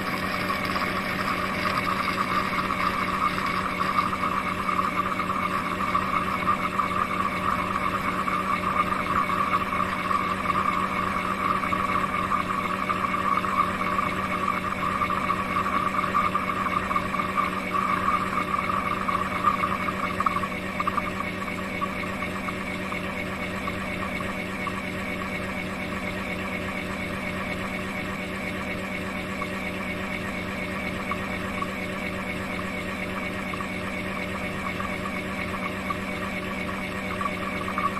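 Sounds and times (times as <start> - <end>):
station motors humming and whirring: 0.0 - 37.9.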